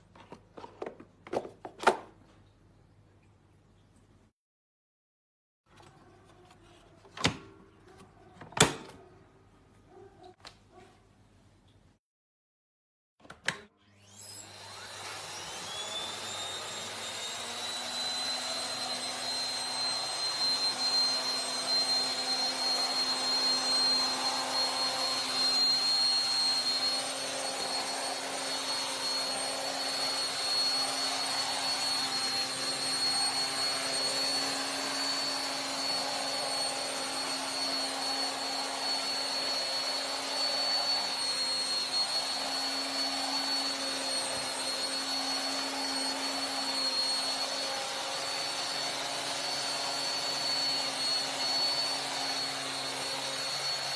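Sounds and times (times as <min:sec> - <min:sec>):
vacuum cleaner motor whine: 0:13.7 - 0:53.9.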